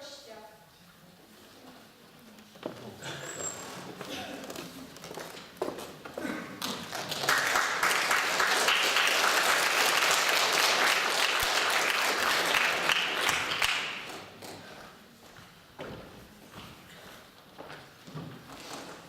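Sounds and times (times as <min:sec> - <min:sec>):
audience applauding: 0:06.6 - 0:14.5.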